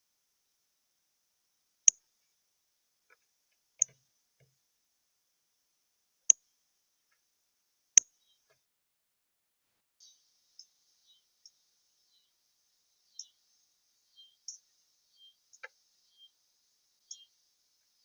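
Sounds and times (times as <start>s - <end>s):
faint ticks: 10.5s - 10.8s, 11.4s - 11.6s, 13.1s - 13.6s, 14.3s - 16.2s.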